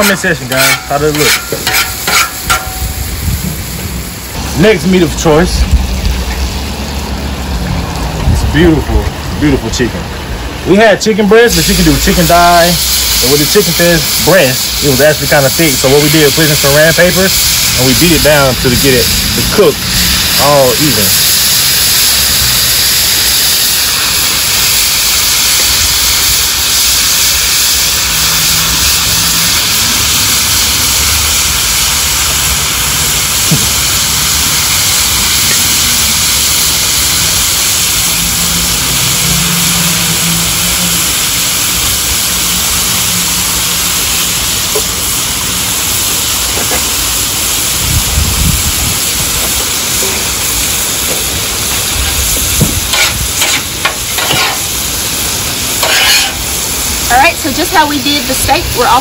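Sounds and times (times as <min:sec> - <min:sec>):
meat sizzling on a griddle: 0:00.0 - 0:59.0.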